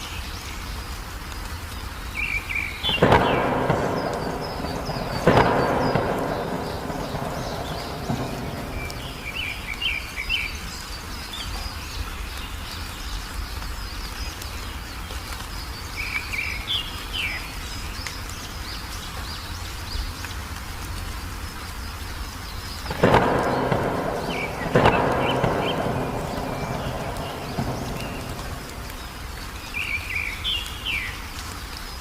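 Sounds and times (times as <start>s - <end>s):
wild birds chirping: 1.8s - 20.3s, 21.4s - 32.0s
low outdoor rumble: 2.9s - 10.2s, 22.7s - 30.1s.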